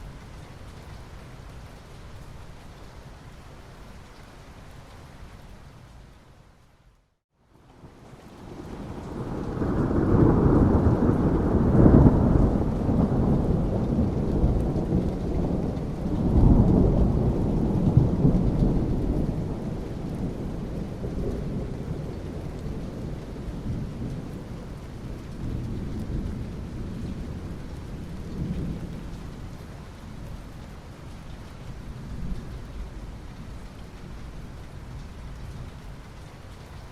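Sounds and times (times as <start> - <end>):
steady rain: 0.0 - 36.9
thunder rumbling: 8.4 - 30.4.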